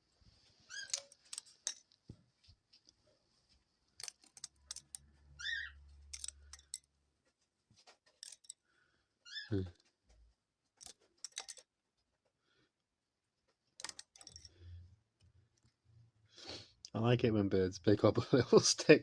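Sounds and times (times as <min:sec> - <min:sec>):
dove squeaks: 0:00.7 - 0:01.1, 0:05.3 - 0:05.8, 0:09.3 - 0:09.6
sticks tapping wire cage: 0:13.8 - 0:14.5.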